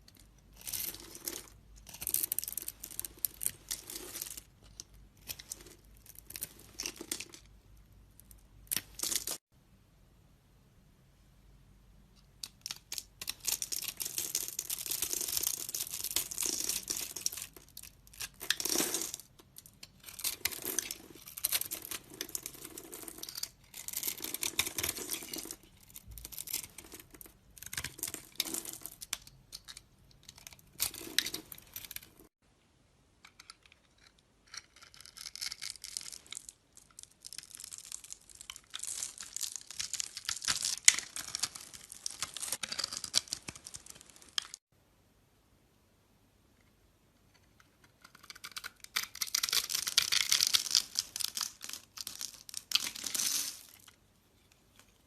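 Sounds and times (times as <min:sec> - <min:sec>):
knife scraping soap: 0:33.9 - 0:36.0, 0:47.3 - 0:50.5.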